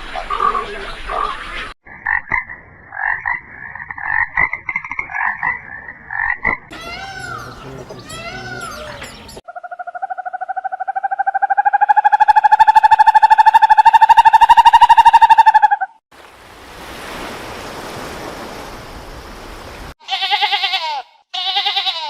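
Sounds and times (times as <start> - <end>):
chorus of chirps: 6.7 - 16.0.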